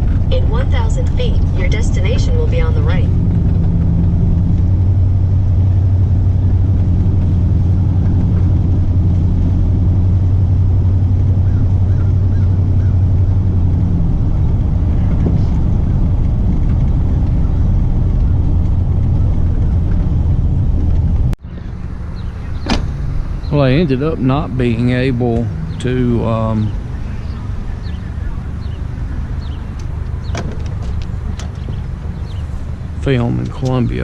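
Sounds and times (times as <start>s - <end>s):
low drone: 0.0s - 34.0s
truck engine and road rumble: 0.0s - 34.0s.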